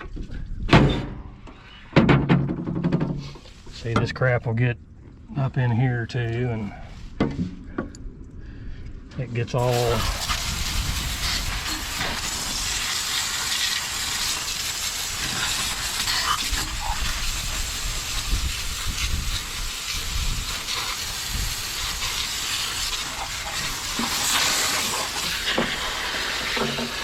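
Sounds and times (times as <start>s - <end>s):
hose water spraying on steel: 9.6s - 27.0s.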